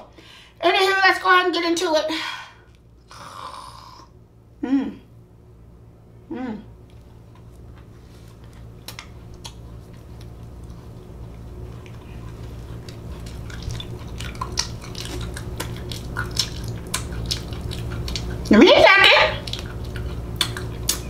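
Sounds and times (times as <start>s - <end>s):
steady low hum: 0.0s - 21.0s
wet chewing and lip smacks: 6.8s - 18.5s, 19.1s - 21.0s.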